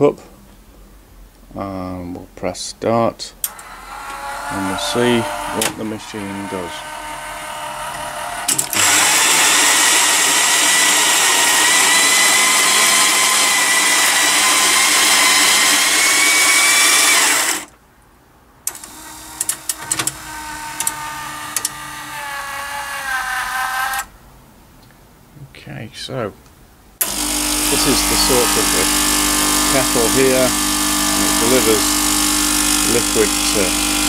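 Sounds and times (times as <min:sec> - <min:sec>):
mechanical brewing hum: 0:03.4 - 0:17.8, 0:18.7 - 0:24.0, 0:27.0 - 0:34.0
coffee grinder whirring: 0:03.5 - 0:17.7, 0:18.7 - 0:24.0, 0:27.0 - 0:34.0.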